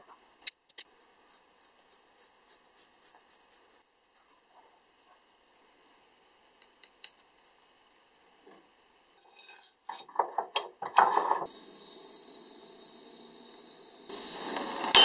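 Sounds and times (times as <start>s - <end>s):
steady hiss: 11.1s - 15.0s.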